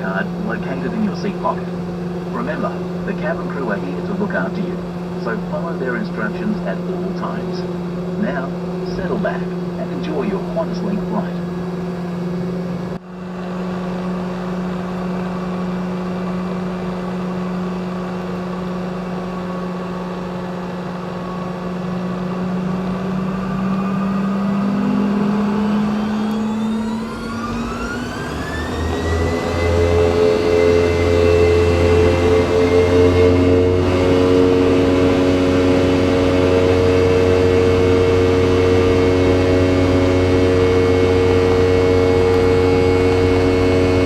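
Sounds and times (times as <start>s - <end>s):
deep engine rumble: 0.0s - 44.0s
jet engine spooling whine: 0.0s - 44.0s
jet engines humming: 0.0s - 44.0s.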